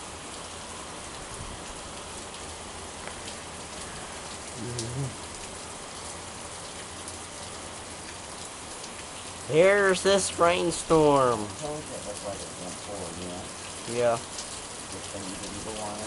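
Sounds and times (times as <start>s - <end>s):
heavy rain falling: 0.0s - 16.0s
low voice-like sound: 4.6s - 5.2s.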